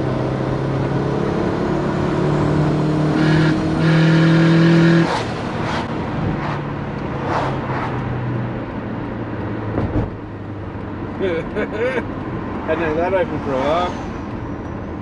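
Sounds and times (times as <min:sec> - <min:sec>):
car engine under throttle: 0:00.0 - 0:11.2.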